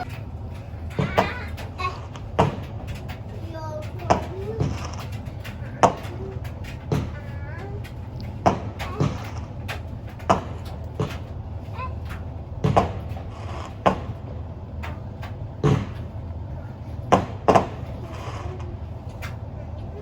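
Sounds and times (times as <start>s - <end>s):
fireworks bangs: 12.6s - 14.7s.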